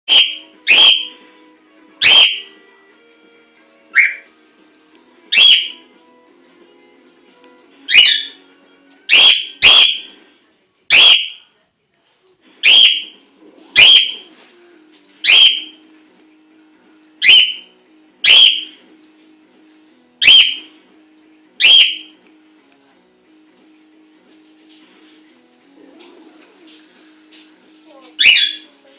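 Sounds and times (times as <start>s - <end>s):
parrot shrill calls: 0.1s - 1.1s, 2.0s - 2.4s, 4.0s - 4.2s, 5.3s - 5.8s, 7.9s - 8.4s, 9.1s - 10.1s, 10.9s - 11.4s, 12.6s - 13.1s, 13.8s - 14.2s, 15.2s - 15.7s, 17.2s - 17.6s, 18.2s - 18.8s, 20.2s - 20.6s, 21.6s - 22.1s, 28.2s - 28.7s.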